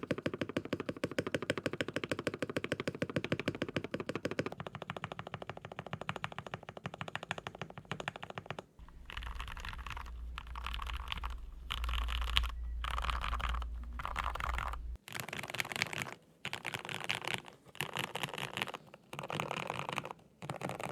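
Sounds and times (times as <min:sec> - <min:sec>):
mechanical keyboard typing: 0:07.3 - 0:15.0.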